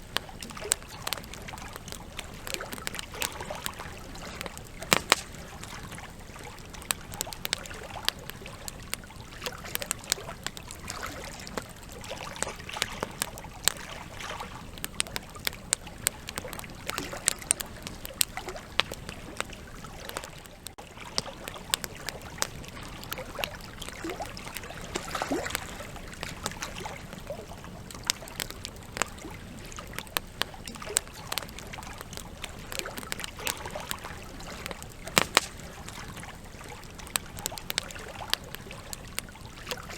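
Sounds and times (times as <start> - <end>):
campfire logs crackling and popping: 0.0 - 39.9
low rush of flame: 26.0 - 39.9.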